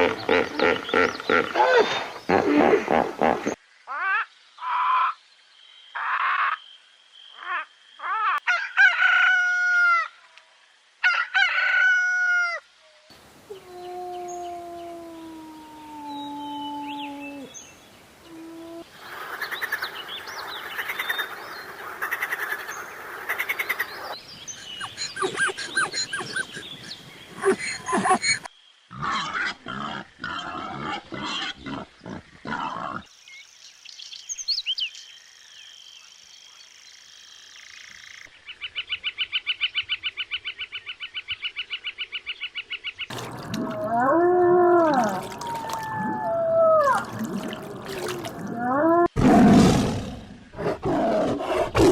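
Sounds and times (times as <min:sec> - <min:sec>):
animal calls: 0:24.5 - 0:33.1, 0:43.1 - 0:49.2
rising and falling call: 0:24.6 - 0:28.5.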